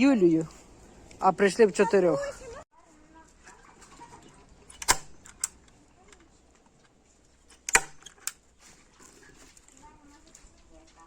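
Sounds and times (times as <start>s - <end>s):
sharp knocks on a fence: 7.7s - 8.3s.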